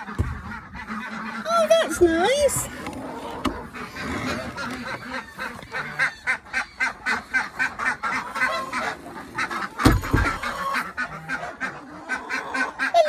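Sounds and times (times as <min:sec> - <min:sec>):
ducks and geese quacking and honking: 0:00.0 - 0:13.0
loud thump: 0:09.8 - 0:10.6.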